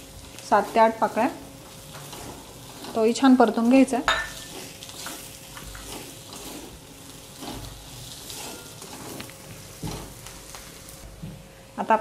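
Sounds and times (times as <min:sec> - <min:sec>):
masala sizzling in oil: 0:00.0 - 0:11.5
steel spatula scraping pan: 0:00.6 - 0:03.5, 0:04.1 - 0:09.3.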